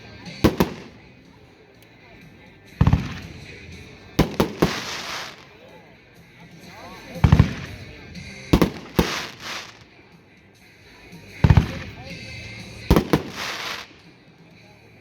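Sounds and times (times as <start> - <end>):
fireworks bangs: 0.0 - 1.3, 2.7 - 5.6, 7.2 - 10.0, 11.4 - 14.1
fireworks hissing crackle: 3.0 - 5.6, 8.6 - 10.0, 11.5 - 14.2.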